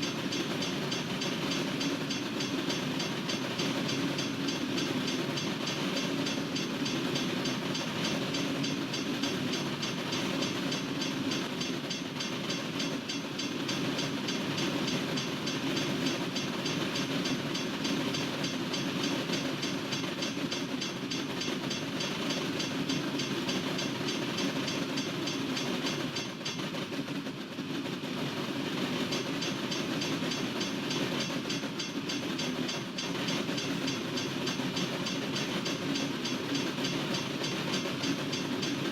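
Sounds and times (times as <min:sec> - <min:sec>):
train wheels rumbling and clicking: 0:00.0 - 0:38.9.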